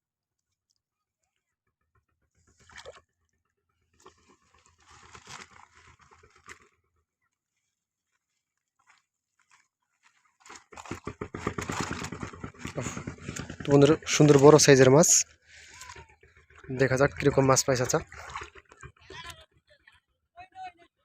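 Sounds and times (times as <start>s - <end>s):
crackling and rustling handling noise: 4.2s - 6.7s.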